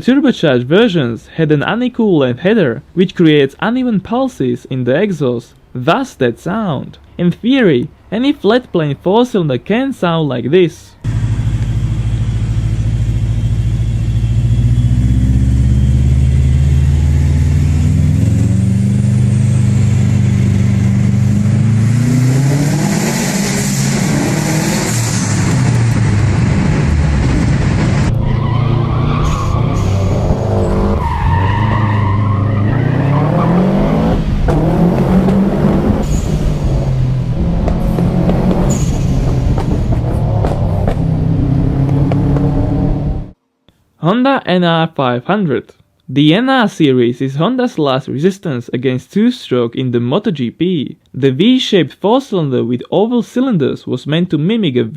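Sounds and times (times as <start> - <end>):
car engine accelerating hard: 11.0 - 43.4
tyre or gravel noise: 34.5 - 42.6.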